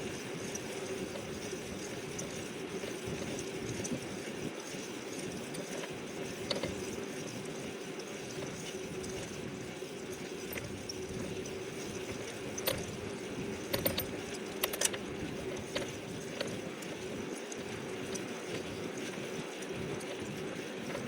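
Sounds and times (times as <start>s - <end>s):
bike clicks and rattles: 4.7s - 9.4s, 10.0s - 20.3s.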